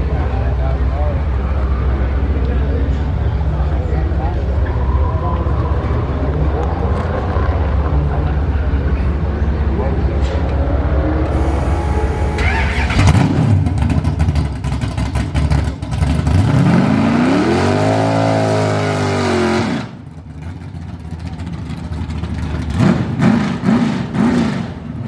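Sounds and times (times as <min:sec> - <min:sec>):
drag car engine revving: 0:09.7 - 0:25.0.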